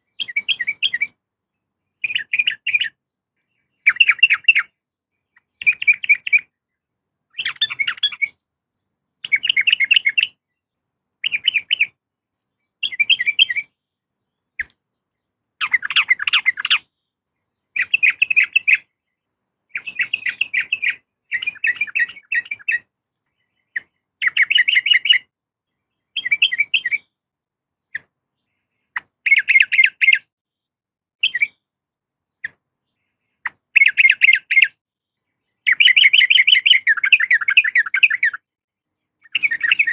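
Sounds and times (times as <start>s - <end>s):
bird chattering calls: 3.8s - 4.8s, 15.6s - 16.9s, 19.7s - 22.9s, 23.6s - 25.2s, 35.6s - 38.4s.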